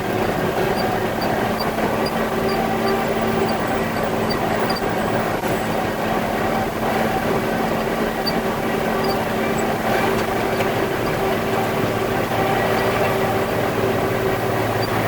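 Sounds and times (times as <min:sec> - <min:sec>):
diesel engine droning under load: 0:00.0 - 0:15.0.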